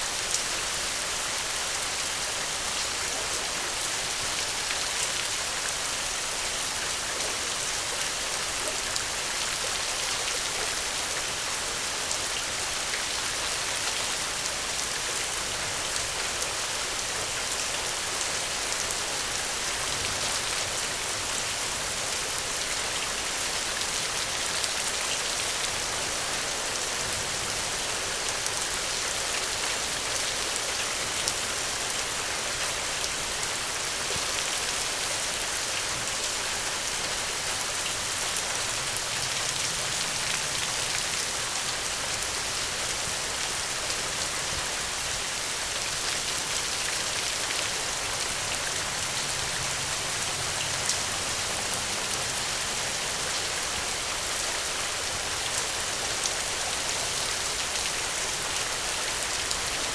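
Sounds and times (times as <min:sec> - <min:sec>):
gentle rain falling: 0:00.0 - 0:59.9.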